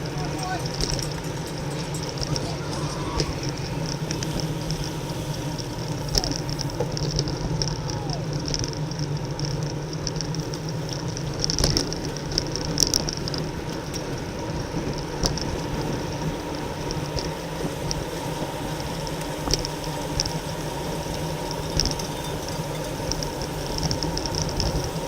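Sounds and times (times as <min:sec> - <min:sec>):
wind rush: 0:00.0 - 0:08.5
tyre hum: 0:00.0 - 0:13.3
high bicycle clicking: 0:00.0 - 0:25.0.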